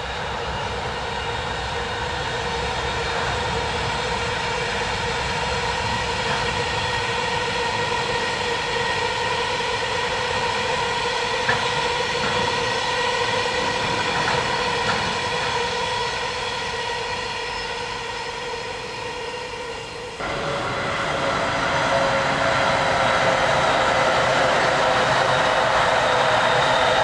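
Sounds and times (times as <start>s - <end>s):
electric train passing close: 0.0s - 27.0s
freight train rumbling past: 0.0s - 27.0s
high ringing wheel whine: 0.0s - 27.0s
clacks over rail joints: 11.4s - 12.8s, 13.7s - 15.6s.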